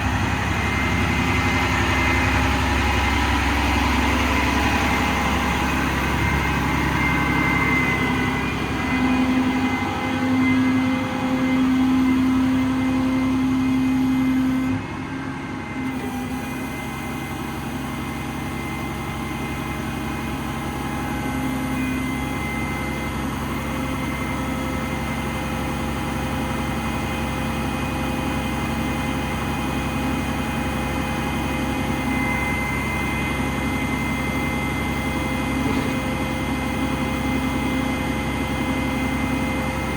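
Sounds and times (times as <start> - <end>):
engine humming: 0.0 - 16.4.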